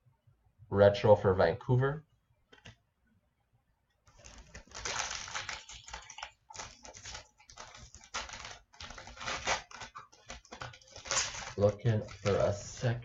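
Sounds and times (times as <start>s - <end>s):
card pack wrapper tearing: 4.1s - 13.0s
cards rustling: 4.1s - 13.0s.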